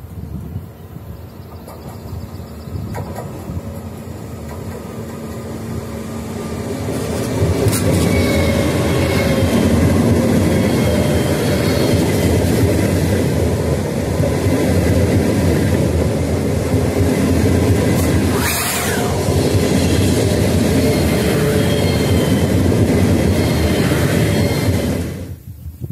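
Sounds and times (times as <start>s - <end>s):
high-speed train passing: 0.0s - 25.9s.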